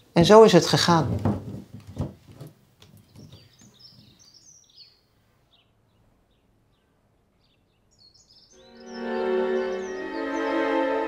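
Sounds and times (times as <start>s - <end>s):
faint small birds chirping: 2.8s - 10.6s.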